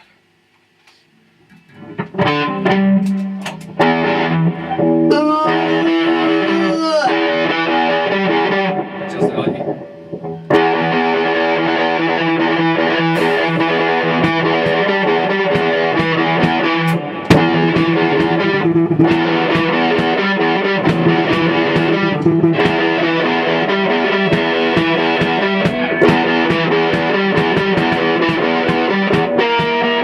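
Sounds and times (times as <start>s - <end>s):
distorted electric guitar chords: 1.3s - 30.0s
rock band playing: 1.9s - 30.0s
sharp drum strikes: 13.1s - 30.0s.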